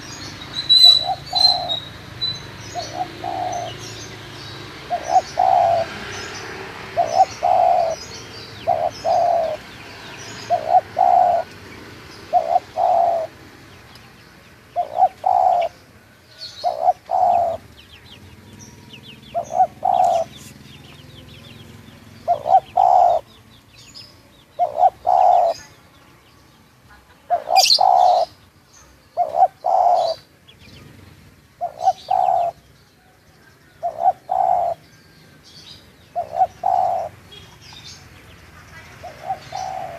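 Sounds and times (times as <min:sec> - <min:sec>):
dove cooing: 0:00.0 - 0:13.5, 0:14.7 - 0:23.4, 0:24.5 - 0:25.8, 0:27.2 - 0:28.4, 0:29.1 - 0:30.9, 0:31.5 - 0:32.6, 0:33.7 - 0:34.8, 0:36.1 - 0:37.2, 0:39.0 - 0:39.9
small birds chirping: 0:00.0 - 0:39.9.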